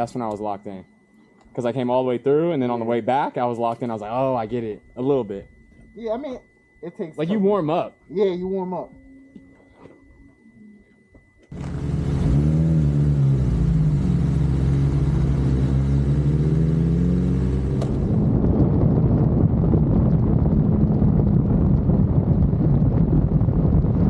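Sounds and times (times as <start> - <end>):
motorcycle engine revving: 11.5 - 18.4
wind buffeting microphone: 18.1 - 24.0.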